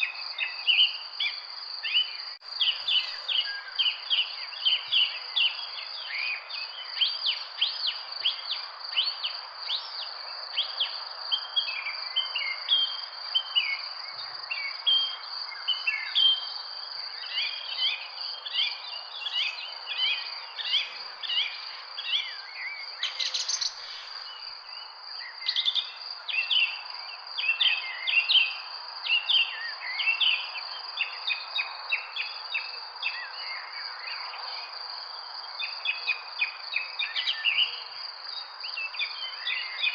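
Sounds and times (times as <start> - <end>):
birds chirping and calling: 2.5 - 3.9, 18.5 - 24.4.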